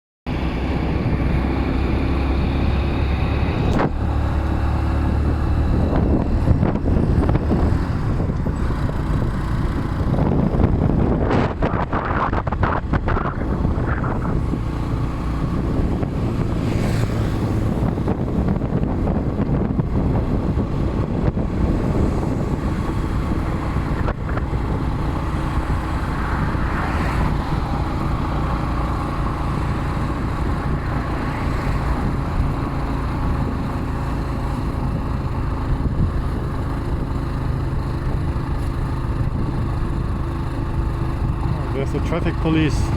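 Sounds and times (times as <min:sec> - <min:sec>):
wind rushing over microphone: 0:00.3 - 0:42.9
motorcycle engine running: 0:00.4 - 0:42.9.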